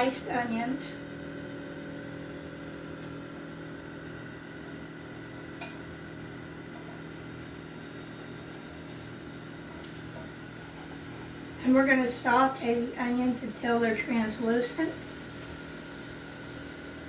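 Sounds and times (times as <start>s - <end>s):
low steady hum: 0.0s - 17.0s
onions sizzling in oil: 6.3s - 17.0s.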